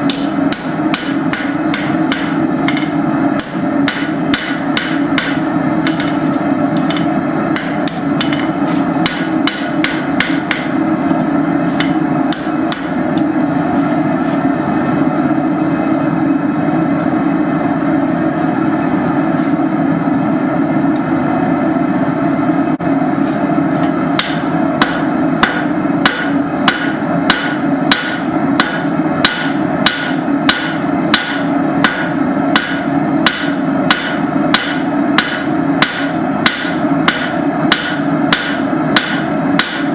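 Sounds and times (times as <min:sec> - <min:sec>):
hammer striking steel on anvil: 0:00.0 - 0:10.8, 0:11.8 - 0:13.3, 0:23.8 - 0:39.9.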